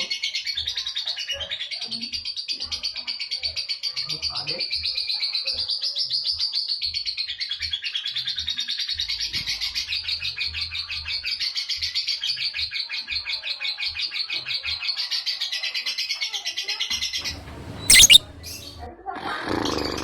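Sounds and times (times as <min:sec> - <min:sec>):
lovebird chattering trill: 0:17.3 - 0:18.7.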